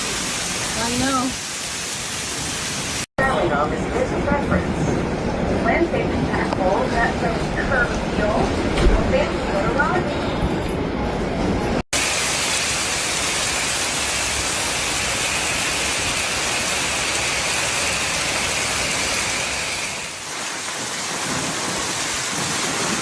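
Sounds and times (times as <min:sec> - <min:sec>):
heavy rain pouring: 0:00.0 - 0:03.1, 0:11.8 - 0:23.0.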